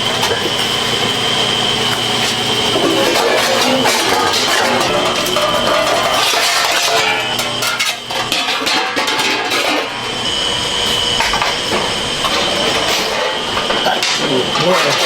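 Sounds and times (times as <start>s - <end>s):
thin high whine: 0.0s - 15.0s
workshop noise: 0.0s - 15.0s
steel pieces clanking: 2.0s - 10.1s.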